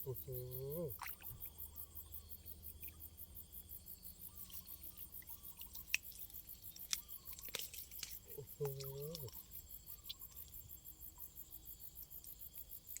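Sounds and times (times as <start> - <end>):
insects chirping: 0.0 - 13.0
wet sounds: 5.4 - 10.6.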